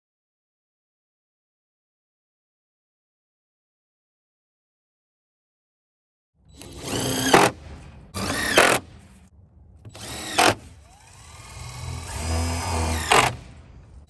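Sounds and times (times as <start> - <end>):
power drill whining: 6.5 - 9.2, 9.8 - 14.0.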